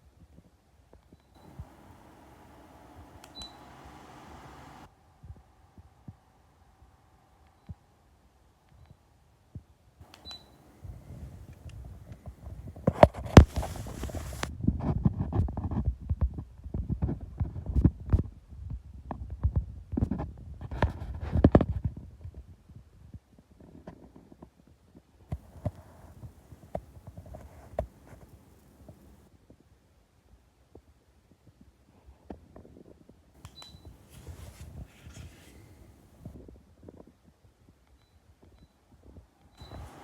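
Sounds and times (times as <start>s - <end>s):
faint clicks: 1.4s - 4.9s
rustling: 1.4s - 4.9s, 10.0s - 14.5s, 25.3s - 29.3s, 33.4s - 36.4s, 39.6s - 40.0s.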